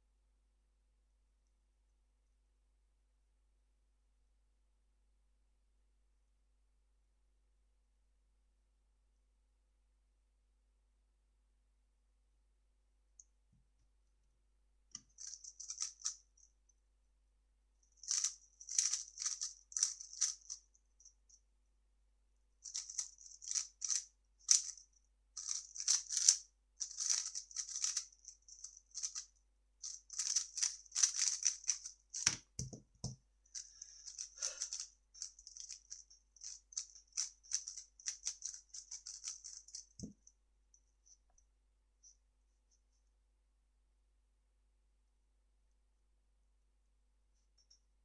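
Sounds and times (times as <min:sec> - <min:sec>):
plastic puzzle cube clicking: 0:25.4 - 0:28.0, 0:29.8 - 0:32.8, 0:34.0 - 0:39.8.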